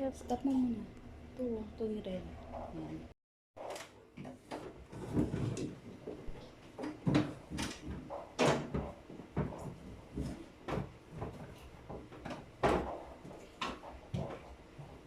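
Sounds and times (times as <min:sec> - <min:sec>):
refrigerator parts knocking and clattering: 0:03.6 - 0:15.0.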